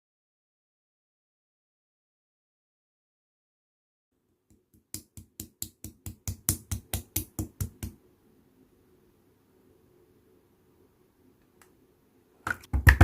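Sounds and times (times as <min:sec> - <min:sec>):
rapid hand clicks: 0:04.9 - 0:08.0
faint low hum: 0:05.8 - 0:13.0.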